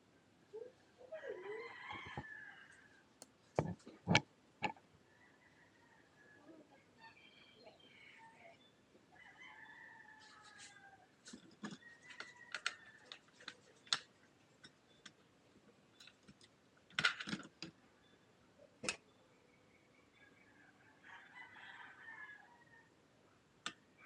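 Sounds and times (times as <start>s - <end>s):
rooster crowing: 1.1s - 3.0s, 9.2s - 11.1s, 20.4s - 22.9s.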